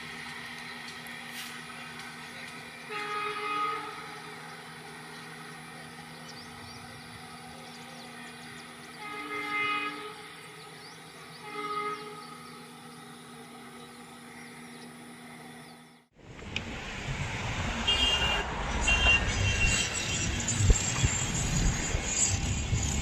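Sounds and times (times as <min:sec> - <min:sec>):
steady low hum: 0:00.0 - 0:23.0
locomotive horn blasts: 0:02.9 - 0:04.4, 0:09.0 - 0:10.5, 0:11.4 - 0:12.7, 0:17.8 - 0:21.0.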